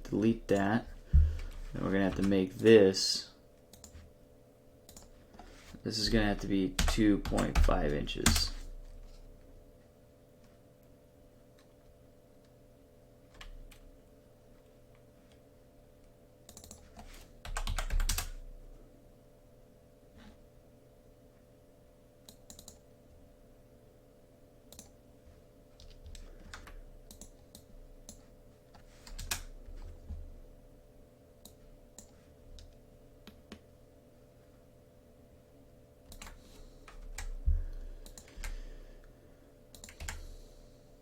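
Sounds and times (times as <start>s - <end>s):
faint steady hum: 0.0s - 41.0s
computer keyboard typing: 3.7s - 4.0s, 4.9s - 5.1s, 6.3s - 8.7s, 16.5s - 18.4s, 22.3s - 22.8s, 25.8s - 29.9s, 36.1s - 37.4s, 38.0s - 38.6s, 39.7s - 40.2s.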